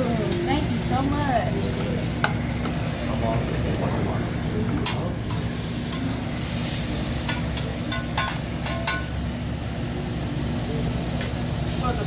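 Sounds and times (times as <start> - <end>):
food sizzling on griddle: 4.0 - 12.0.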